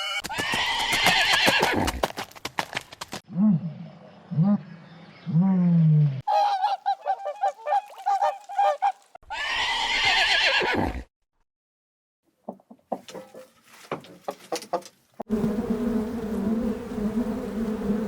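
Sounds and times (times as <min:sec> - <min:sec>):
animal calls: 0:03.5 - 0:10.9.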